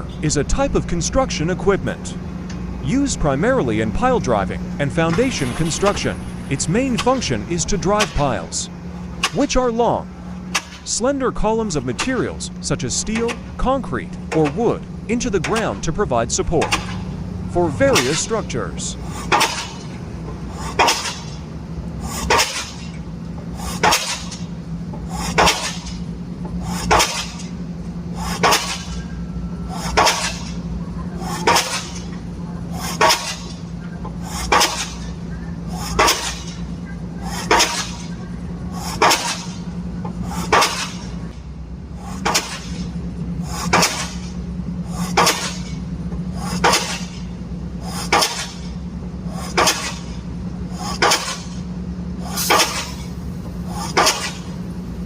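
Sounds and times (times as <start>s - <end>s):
low machinery hum: 0.0s - 55.0s
pile-driving hammer clanging: 3.8s - 10.9s, 11.6s - 20.0s, 20.6s - 21.5s, 22.1s - 23.0s, 23.6s - 24.5s, 25.1s - 27.6s, 28.2s - 30.6s, 31.2s - 32.2s, 32.8s - 33.6s, 34.2s - 36.7s, 37.3s - 38.2s, 38.8s - 41.3s, 42.1s - 47.3s, 47.9s - 48.8s, 49.4s - 50.2s, 50.8s - 51.7s, 52.3s - 53.2s, 53.8s - 54.6s.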